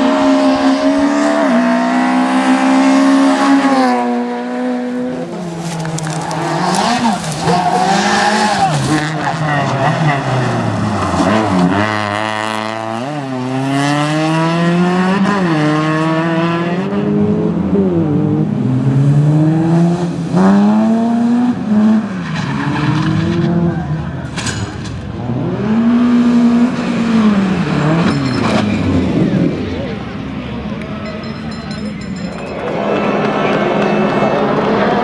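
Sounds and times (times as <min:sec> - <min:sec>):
rally car engine revving: 0:00.0 - 0:30.3.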